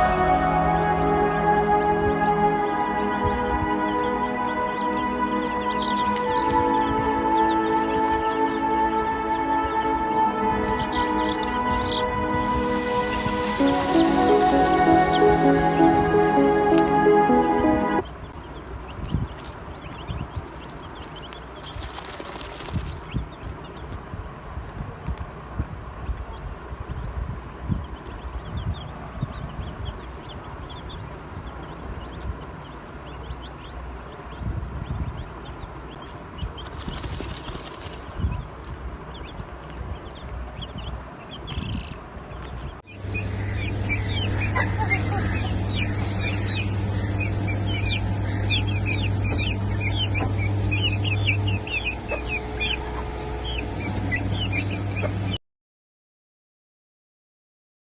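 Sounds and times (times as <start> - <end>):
steady low hum: 0.0 - 19.0, 42.8 - 55.4
chicks peeping: 0.0 - 24.0, 26.0 - 55.4
low rumbling noise: 0.0 - 55.4.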